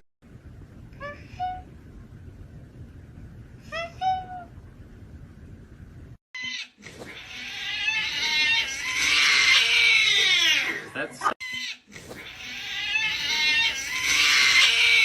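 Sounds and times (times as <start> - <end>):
cat meowing and yowling: 12.4 - 15.0.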